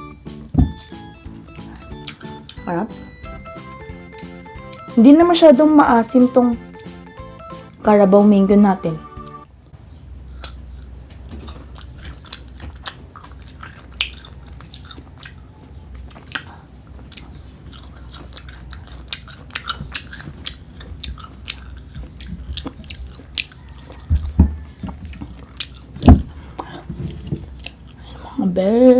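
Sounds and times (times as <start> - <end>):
crunchy biting and chewing: 0.7 - 2.6, 9.2 - 28.2.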